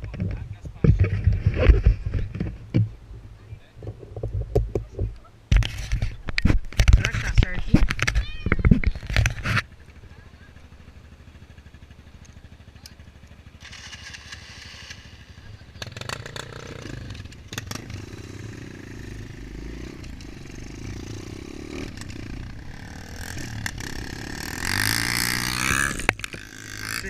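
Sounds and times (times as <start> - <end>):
dirt bike engine running: 8.9 - 27.0.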